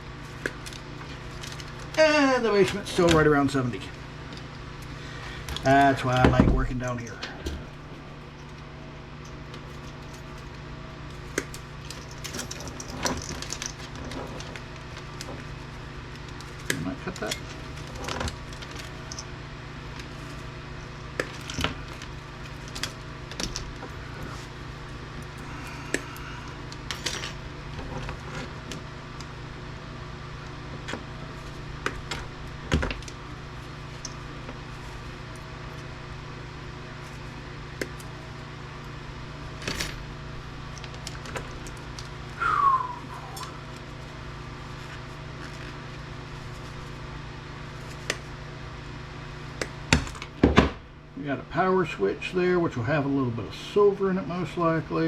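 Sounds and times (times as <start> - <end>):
steady low hum: 0.0 - 55.0
brief falling squeal: 42.4 - 43.6.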